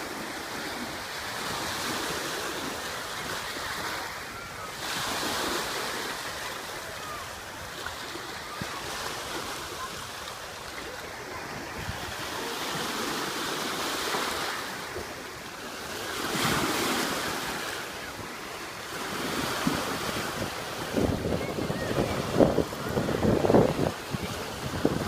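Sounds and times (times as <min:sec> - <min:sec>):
sea waves washing onto shore: 0:00.0 - 0:25.0
wind buffeting microphone: 0:19.6 - 0:25.0.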